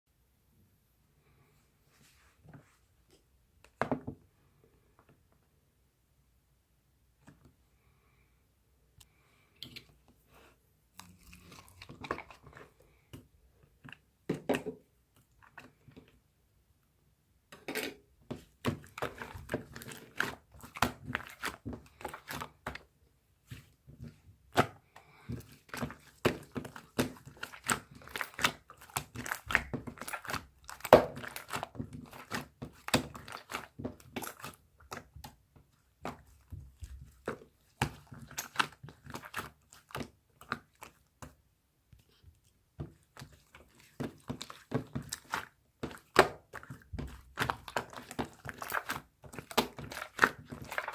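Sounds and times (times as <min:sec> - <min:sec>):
slime crackling and squishing: 0:18.4 - 0:22.9, 0:23.5 - 0:41.4, 0:42.1 - 0:50.9.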